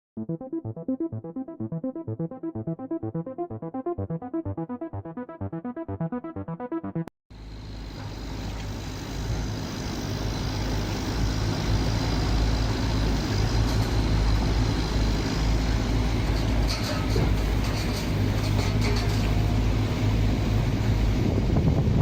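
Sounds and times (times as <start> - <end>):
excavator diesel engine running: 7.4 - 21.6.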